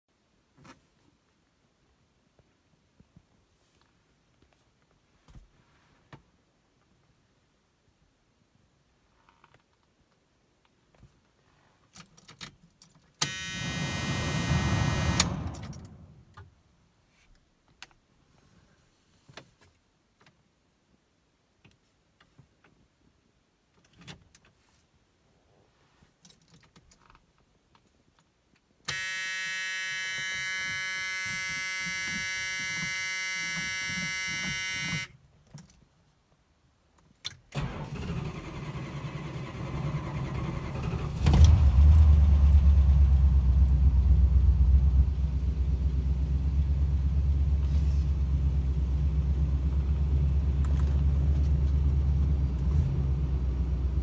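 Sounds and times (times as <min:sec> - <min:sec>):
electric buzzer: 0:13.2 - 0:16.1, 0:28.9 - 0:35.1
car engine starting: 0:13.2 - 0:16.4, 0:37.5 - 0:54.0
car starter cranking: 0:13.2 - 0:16.4, 0:37.6 - 0:42.4.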